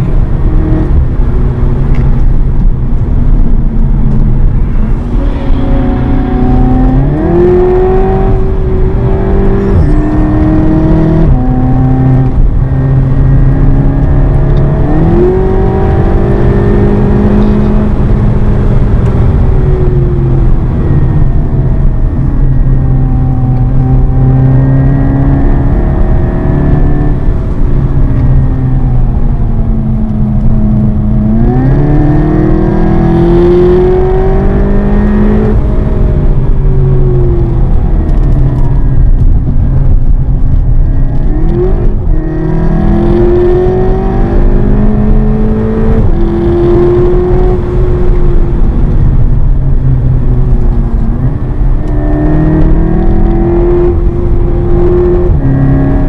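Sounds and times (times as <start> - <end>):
car engine accelerating hard: 0.0 - 56.0
tyre and road noise: 0.0 - 56.0.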